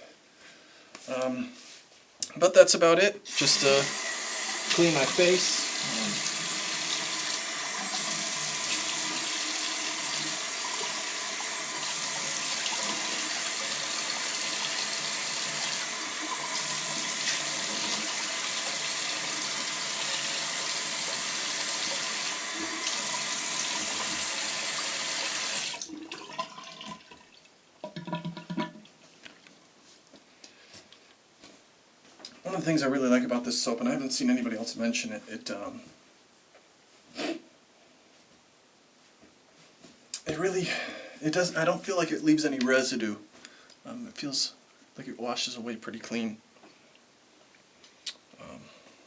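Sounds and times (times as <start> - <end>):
tap water running into sink: 3.3 - 28.9.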